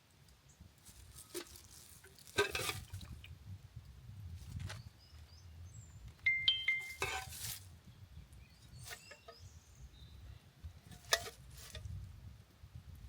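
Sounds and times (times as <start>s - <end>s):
rustling scrape: 0.8s - 3.2s, 6.8s - 7.7s, 8.7s - 9.3s, 10.9s - 12.0s.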